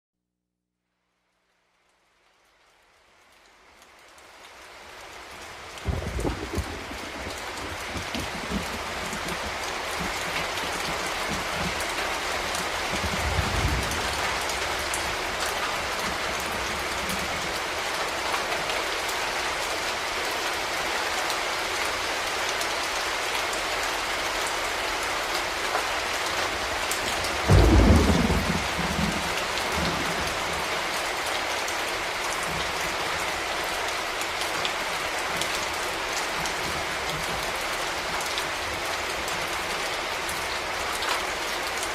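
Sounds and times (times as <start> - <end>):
heavy rain falling: 2.0 - 41.9
thunder crack: 5.8 - 9.4, 27.5 - 29.4
thunder rumbling: 5.8 - 17.4, 27.3 - 30.7.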